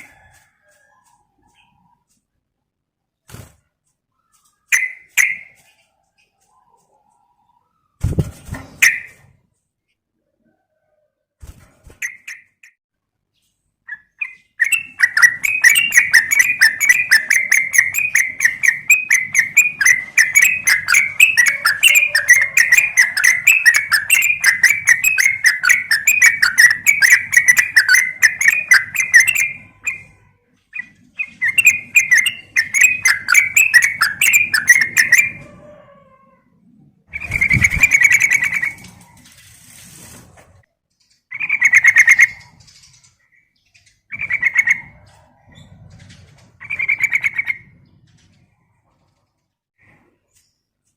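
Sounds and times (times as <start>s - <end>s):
bulbul chattering call: 14.6s - 30.2s, 30.8s - 35.4s.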